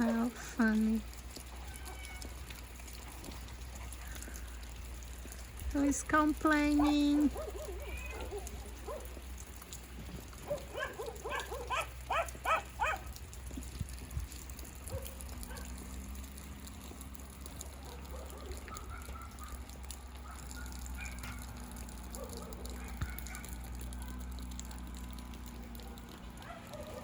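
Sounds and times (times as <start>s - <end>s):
light rain hiss: 0.0s - 27.0s
animal yelping cries: 1.5s - 2.3s, 6.8s - 9.1s.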